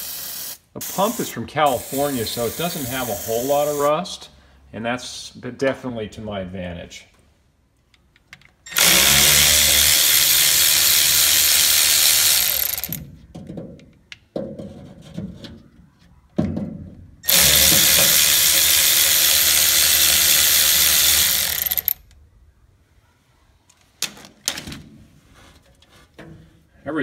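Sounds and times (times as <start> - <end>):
electric ratchet running: 8.7 - 13.0, 17.2 - 22.0.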